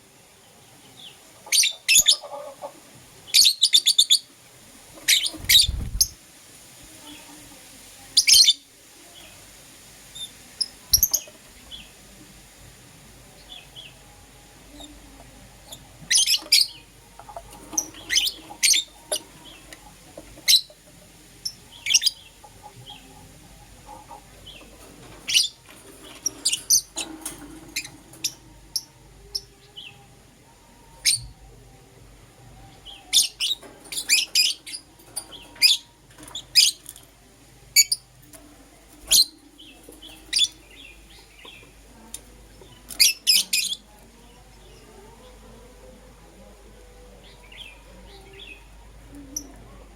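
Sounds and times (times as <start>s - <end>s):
lovebirds chirping: 5.0s - 6.2s, 10.2s - 12.0s, 14.7s - 30.0s, 39.0s - 45.4s.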